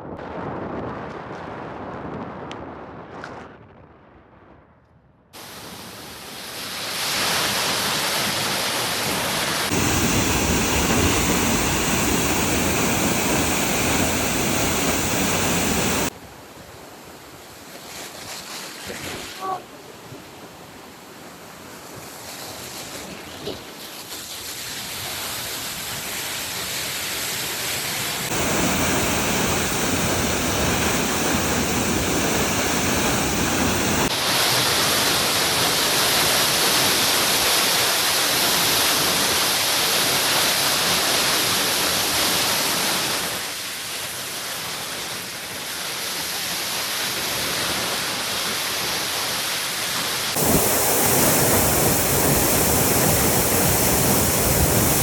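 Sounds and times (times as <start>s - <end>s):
waterfall rushing: 9.7s - 16.1s, 28.3s - 34.1s, 50.4s - 55.0s.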